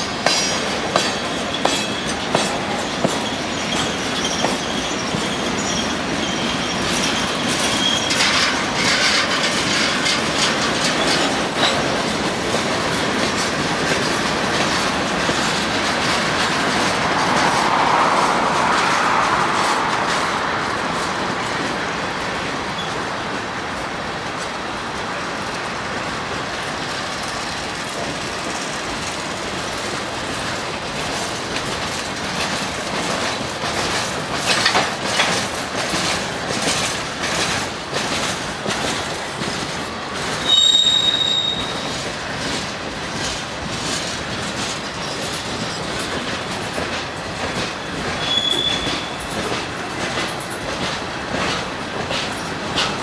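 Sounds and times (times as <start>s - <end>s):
wheels clicking over rail joints: 0.0s - 23.4s, 24.2s - 53.0s
freight train rolling past: 0.0s - 53.0s
high-pitched wheel squeal: 3.2s - 8.3s, 40.4s - 42.0s, 48.2s - 49.2s.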